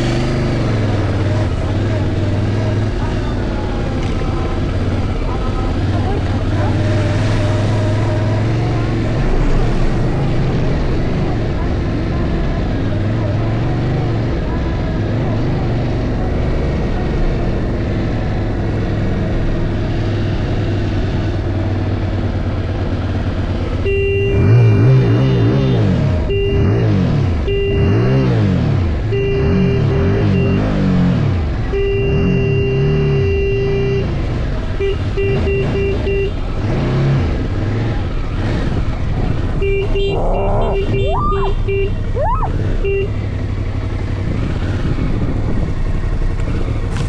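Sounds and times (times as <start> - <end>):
motorcycle engine running: 0.0 - 26.4, 37.4 - 47.0
motorcycle horn tooting: 23.8 - 28.2, 29.1 - 30.7, 31.6 - 34.1, 34.7 - 36.4, 39.5 - 43.3.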